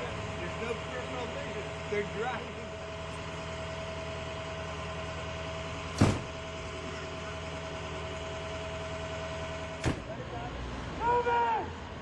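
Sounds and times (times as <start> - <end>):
vehicle engine idling: 0.0 - 12.0
loud thump: 6.0 - 6.4, 9.8 - 10.1.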